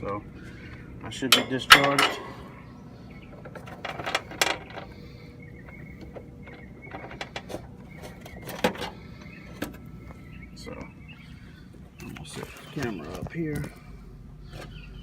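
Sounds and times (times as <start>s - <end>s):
tools clicking and clanking: 1.2s - 2.4s, 3.4s - 4.9s.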